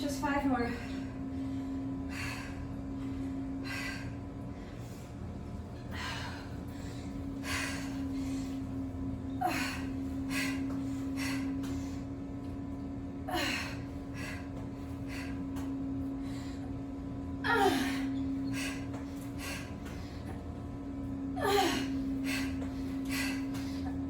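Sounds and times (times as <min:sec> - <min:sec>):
steady hum: 0:00.0 - 0:24.0
woman gasping breaths: 0:05.9 - 0:08.6, 0:09.4 - 0:12.2, 0:13.2 - 0:16.8.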